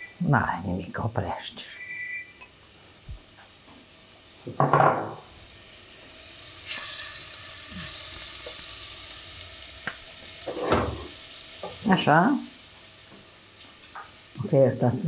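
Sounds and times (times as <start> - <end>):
knock: 4.5 - 5.2
carrots sizzling in hot fat: 5.2 - 15.0.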